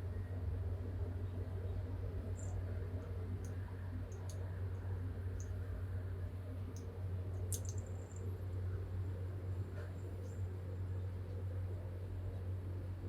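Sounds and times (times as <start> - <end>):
steady low hum: 0.0 - 13.0
faint sharp clicks: 2.4 - 4.5, 5.4 - 5.6, 6.7 - 8.3.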